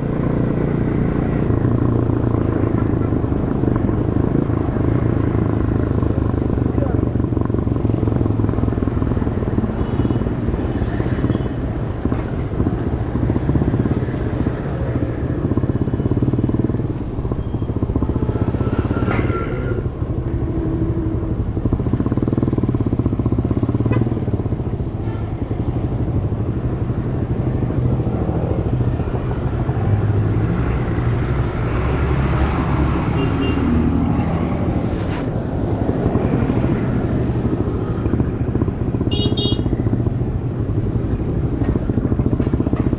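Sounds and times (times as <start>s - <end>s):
motorcycle engine while riding: 0.0s - 42.9s.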